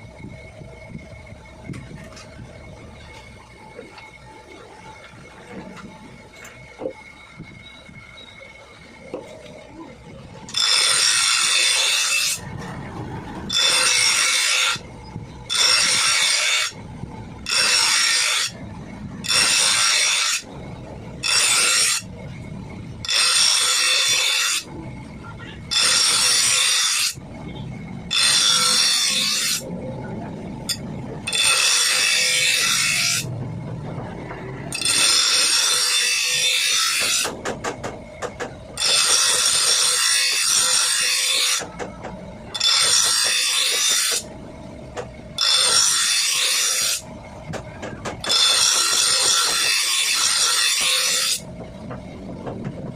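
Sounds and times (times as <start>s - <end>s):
metal file scraping steel blade: 10.5s - 12.5s, 13.5s - 14.8s, 15.5s - 16.8s, 17.4s - 18.6s, 19.2s - 20.5s, 21.2s - 22.1s, 23.0s - 24.7s, 25.6s - 27.2s, 28.1s - 29.6s, 30.6s - 33.3s, 34.7s - 37.4s, 38.8s - 41.8s, 42.5s - 44.3s, 45.4s - 47.0s, 48.2s - 51.5s.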